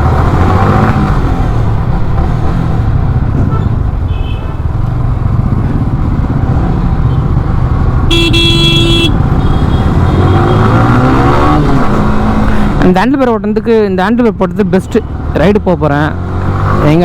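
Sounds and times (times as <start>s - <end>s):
motorcycle engine rumble: 0.0s - 17.0s
road noise: 0.0s - 17.0s
vehicle horn: 3.5s - 4.7s, 8.1s - 10.9s.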